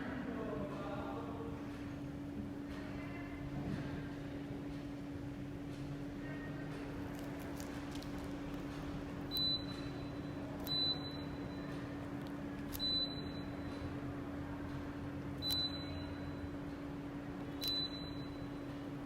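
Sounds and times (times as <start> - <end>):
steady low hum: 0.0 - 19.0
air conditioner beeps: 4.1 - 19.0
click: 15.4 - 15.7.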